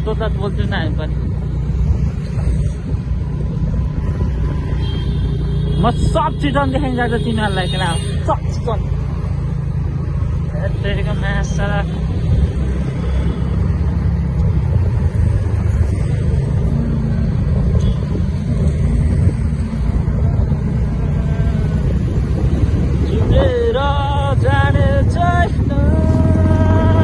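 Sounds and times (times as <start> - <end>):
road noise: 0.0 - 27.0
motorcycle engine running: 16.5 - 27.0.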